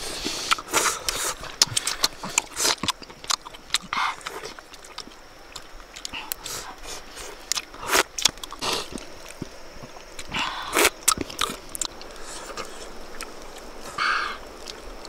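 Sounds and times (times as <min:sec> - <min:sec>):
person chewing noisily: 0:00.0 - 0:15.0
lip smacks: 0:00.2 - 0:15.0.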